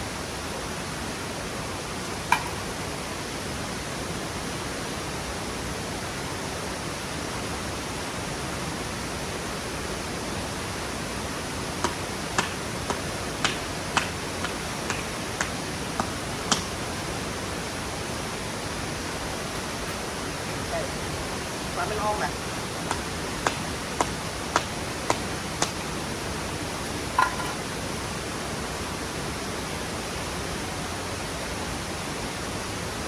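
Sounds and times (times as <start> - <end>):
waterfall rushing: 0.0 - 33.0
sharp taps: 11.8 - 16.7, 22.9 - 25.8.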